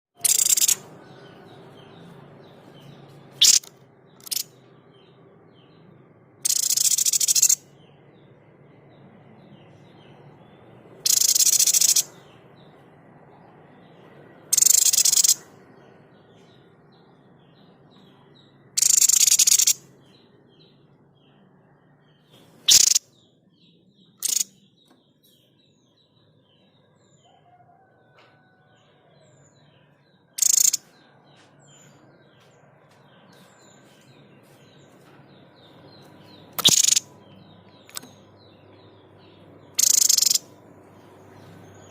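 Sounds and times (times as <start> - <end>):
faint chirps of other birds: 0.1 - 41.9
harsh shot-like bird calls: 0.2 - 0.8, 3.4 - 4.5, 6.4 - 7.6, 11.0 - 12.2, 14.5 - 15.5, 18.8 - 19.8, 22.7 - 23.1, 24.2 - 24.6, 30.4 - 31.0, 36.5 - 37.1, 39.8 - 40.6.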